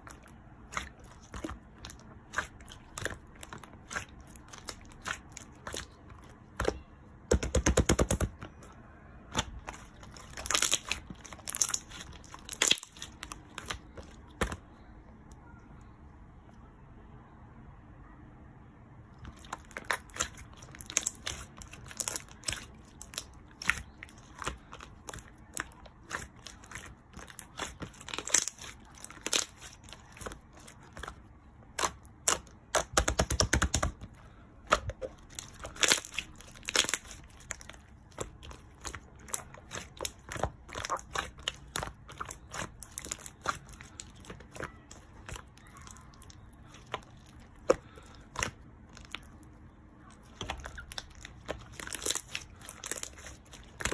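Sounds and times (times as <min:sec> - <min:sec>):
slime squished by hand popping: 0:06.6 - 0:08.6.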